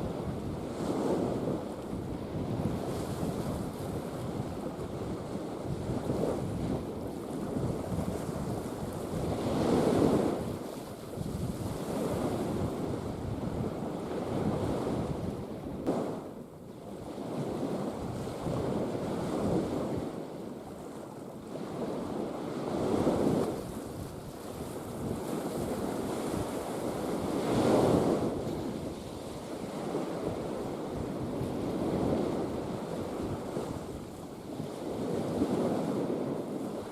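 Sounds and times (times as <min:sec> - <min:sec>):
sea waves washing in: 0:00.0 - 0:36.9
wind buffeting microphone: 0:00.0 - 0:36.9.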